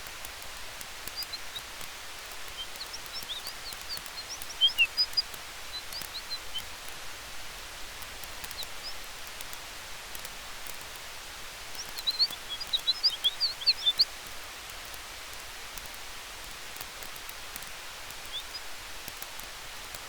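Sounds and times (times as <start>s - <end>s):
campfire crackling and popping: 0.0s - 20.0s
high bird chirps: 1.1s - 1.7s, 2.5s - 6.7s, 11.8s - 14.1s, 18.3s - 18.7s.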